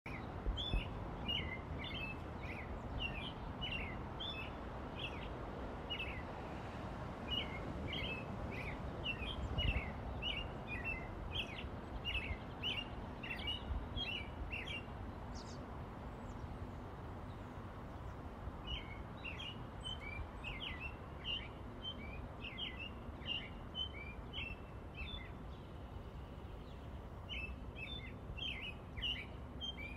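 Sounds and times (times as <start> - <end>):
birds chirping: 0.1 - 6.4, 7.3 - 29.9.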